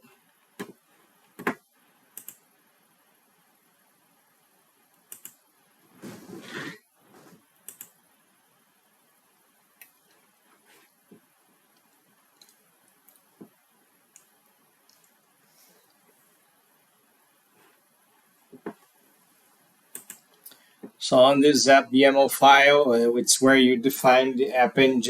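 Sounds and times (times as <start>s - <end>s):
mouse and keyboard clicks: 5.1s - 5.4s, 7.7s - 8.0s, 20.0s - 20.3s
short rustling: 5.9s - 7.5s.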